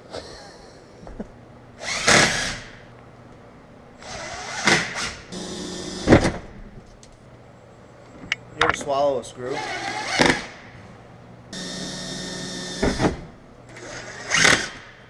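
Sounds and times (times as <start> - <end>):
power drill driving screws: 1.8 - 2.8, 9.6 - 10.5, 11.6 - 14.8.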